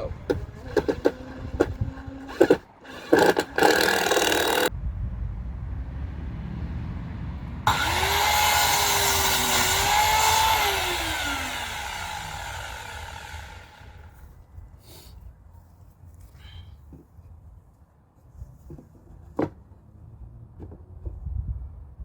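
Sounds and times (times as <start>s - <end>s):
power drill driving screw into wood: 0.6s - 4.7s, 7.7s - 14.1s.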